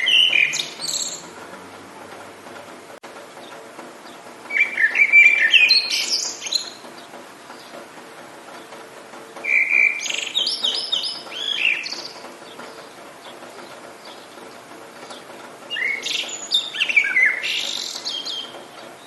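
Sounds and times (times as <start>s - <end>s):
songbird whistling: 0.0s - 1.2s, 4.5s - 6.8s, 9.4s - 12.2s, 15.7s - 18.5s.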